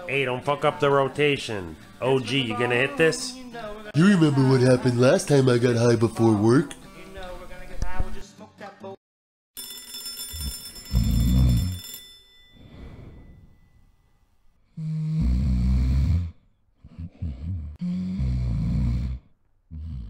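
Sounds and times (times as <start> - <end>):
cartoon snoring: 10.4 - 11.8, 14.7 - 20.0.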